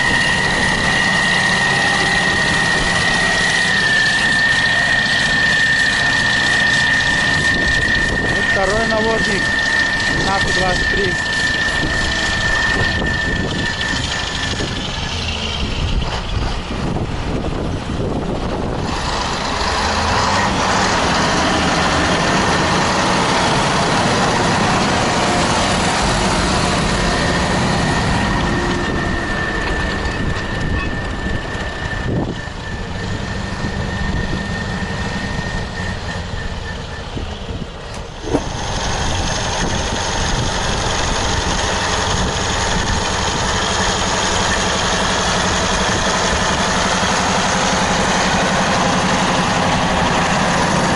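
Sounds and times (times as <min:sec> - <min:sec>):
thin high tone: 0:00.0 - 0:15.3
tractor diesel engine running: 0:00.0 - 0:50.9.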